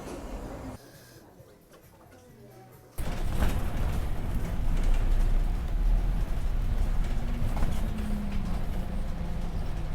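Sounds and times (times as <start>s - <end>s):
vehicle rumbling: 3.0s - 9.9s.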